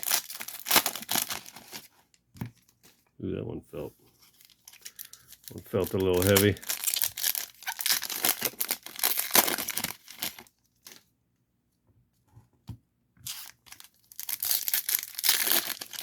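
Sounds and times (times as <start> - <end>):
foil wrapper tearing and crinkling: 0.0 - 1.9, 4.4 - 11.0, 13.3 - 16.0.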